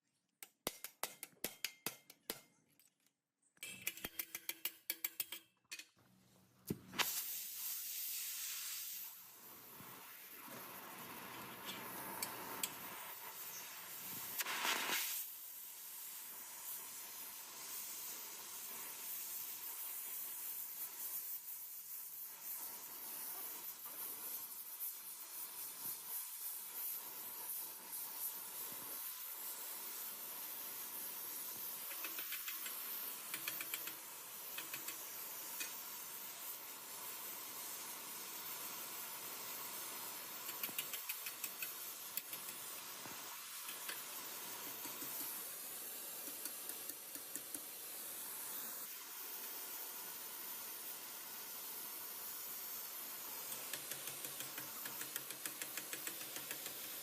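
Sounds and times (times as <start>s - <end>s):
steady hiss: 6.5s - 57.0s
faint ticks: 31.9s - 34.0s, 40.5s - 42.6s.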